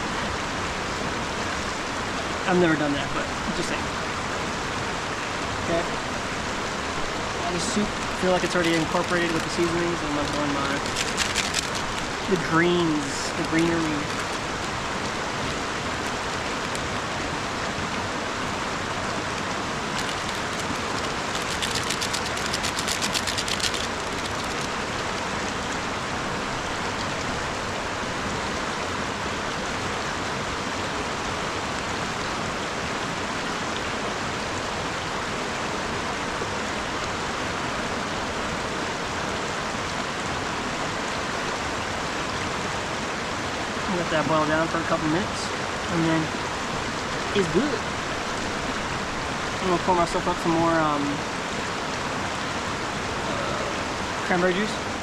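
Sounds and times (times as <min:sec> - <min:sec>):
river rushing: 0:00.0 - 0:55.0
rapid crackling clicks: 0:07.7 - 0:16.9, 0:19.2 - 0:25.3.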